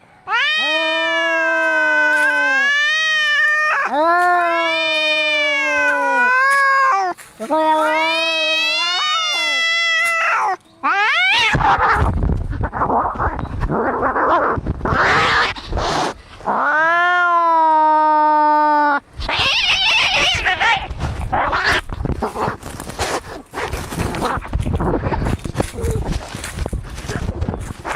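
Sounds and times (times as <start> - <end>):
cat yowling: 0.3 - 13.4, 14.0 - 15.6, 16.5 - 21.9
cats fighting: 0.3 - 18.0, 19.2 - 27.9.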